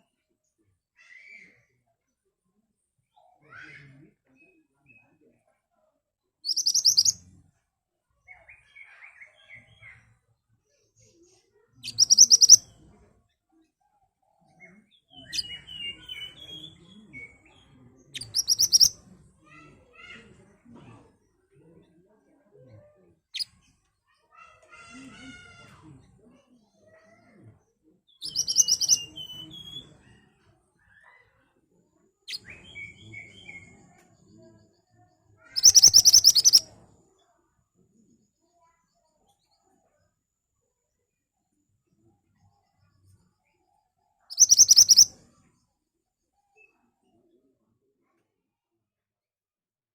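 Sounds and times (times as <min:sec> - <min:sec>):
bird singing: 0:06.4 - 0:07.2, 0:11.8 - 0:12.6, 0:14.9 - 0:19.0, 0:28.1 - 0:29.9, 0:35.4 - 0:36.6, 0:44.3 - 0:45.1
songbird whistling: 0:28.2 - 0:29.8, 0:35.6 - 0:36.6, 0:44.4 - 0:45.1.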